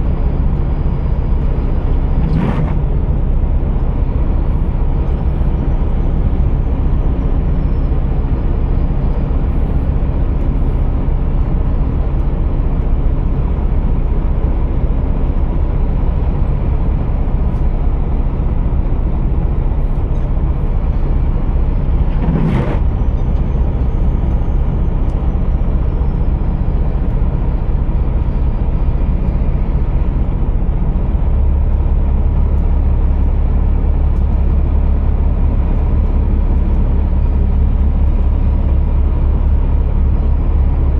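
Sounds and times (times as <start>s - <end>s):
diesel truck engine droning: 0.0s - 40.9s.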